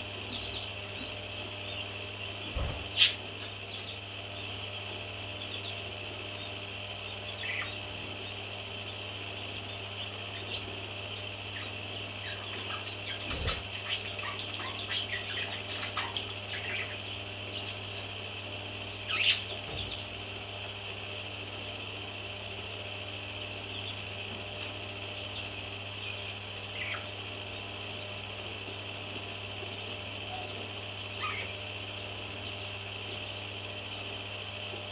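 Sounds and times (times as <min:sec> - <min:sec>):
baby parrots chirping: 0:02.5 - 0:04.0, 0:07.1 - 0:07.9, 0:09.7 - 0:18.1, 0:19.0 - 0:20.1, 0:26.7 - 0:27.1, 0:30.3 - 0:31.6.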